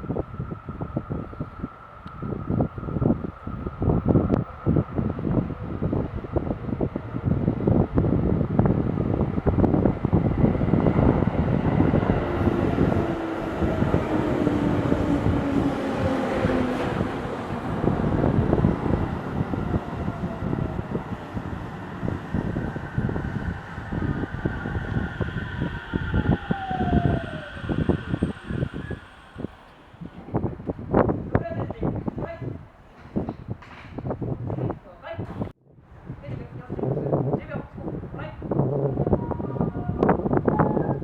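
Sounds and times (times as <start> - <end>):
whining tones gliding downward: 8.4 - 31.1.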